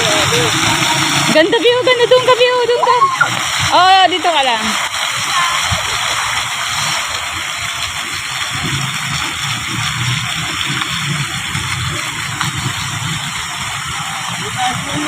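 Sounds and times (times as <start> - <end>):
fountain water splashing: 0.0 - 15.0.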